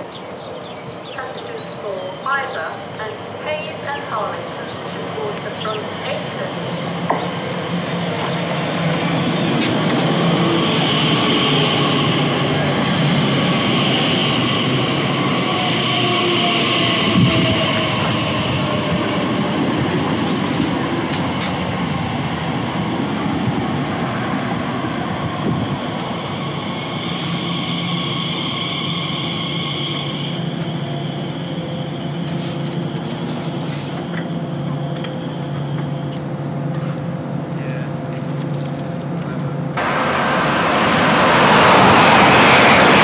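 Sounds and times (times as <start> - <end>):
train wheels rumbling on rails: 0.0 - 43.0
train motor whine: 25.4 - 36.2.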